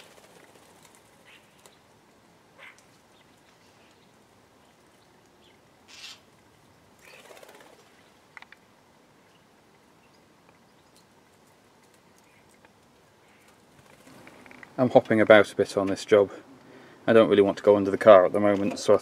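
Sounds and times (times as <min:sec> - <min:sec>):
bird wingbeats and rustling: 0:00.0 - 0:05.0, 0:05.9 - 0:08.7, 0:10.8 - 0:14.8.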